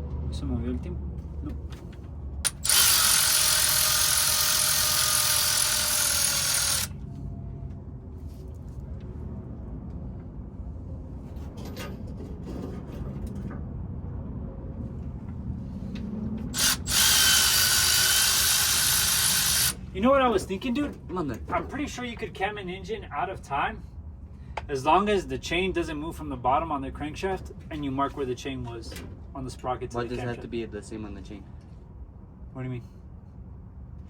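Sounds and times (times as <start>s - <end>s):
power tool motor whirring: 2.5s - 7.0s, 16.5s - 19.8s.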